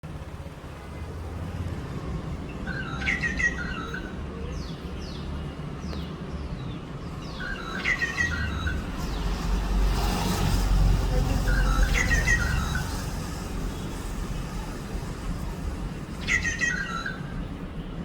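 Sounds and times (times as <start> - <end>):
songbirds singing: 2.3 - 18.0
low rumble: 7.2 - 17.6.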